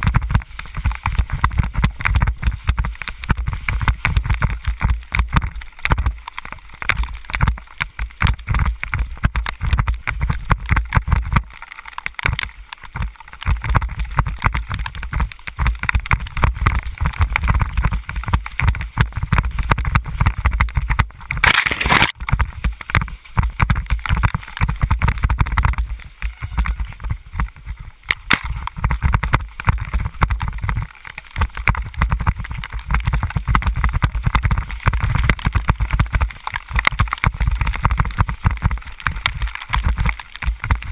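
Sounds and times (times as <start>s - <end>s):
wind buffeting microphone: 0.0s - 6.2s, 22.1s - 40.9s.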